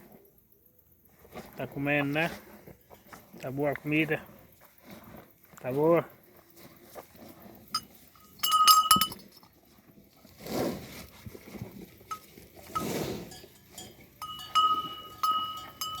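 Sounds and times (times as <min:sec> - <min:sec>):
small metal bell clinking: 0:07.8 - 0:09.5, 0:12.1 - 0:16.0.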